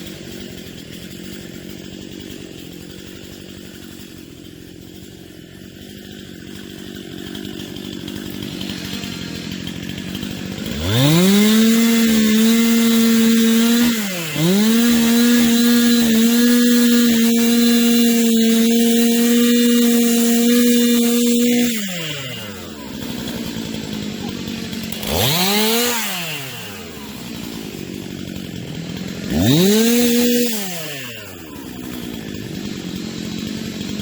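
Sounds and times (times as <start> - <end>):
chainsaw running: 0.0 - 34.0.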